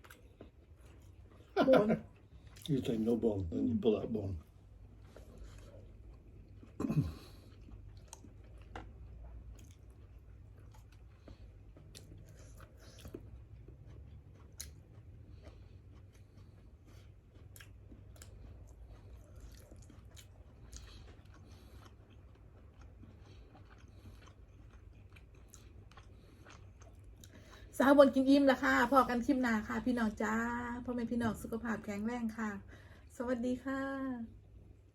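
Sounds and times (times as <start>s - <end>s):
person chewing food: 0.0s - 27.7s
low steady hum: 0.0s - 34.9s.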